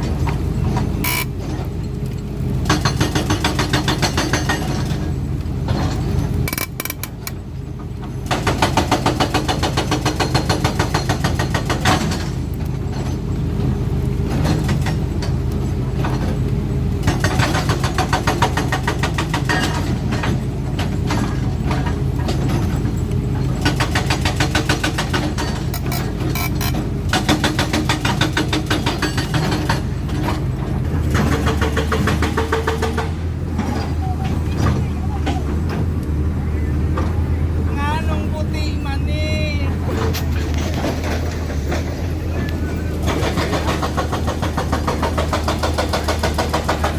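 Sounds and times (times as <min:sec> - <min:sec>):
diesel engine running: 0:00.0 - 0:46.9
sharp metallic clicks: 0:06.5 - 0:07.4.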